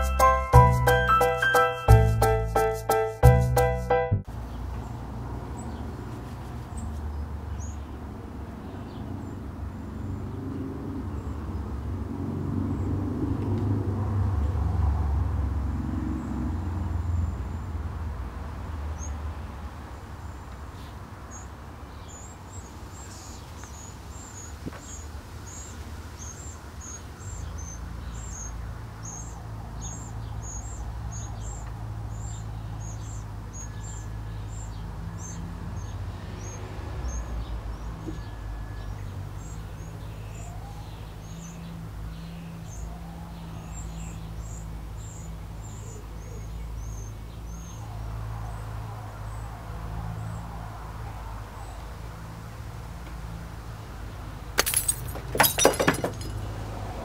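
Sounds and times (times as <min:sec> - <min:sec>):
small bird chirping: 0:20.2 - 0:48.6.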